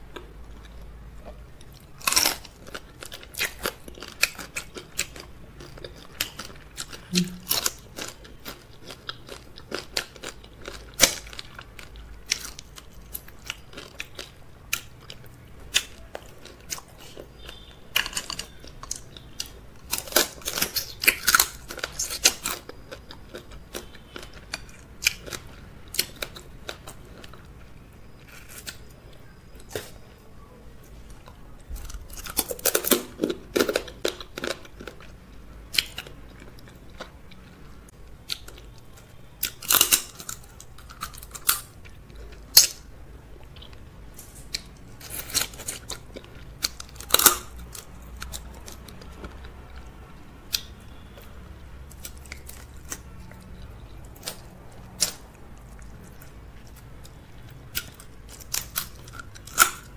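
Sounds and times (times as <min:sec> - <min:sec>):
chewing and wet mouth sounds: 0:00.0 - 0:59.9.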